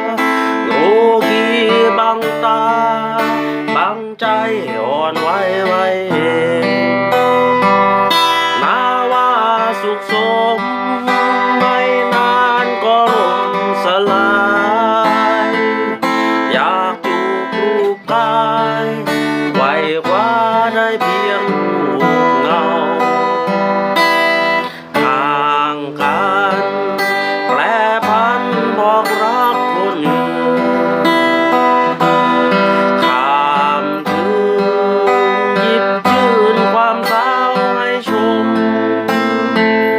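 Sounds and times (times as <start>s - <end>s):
acoustic guitar strumming: 0.0s - 39.9s
person singing with vibrato: 0.0s - 39.9s.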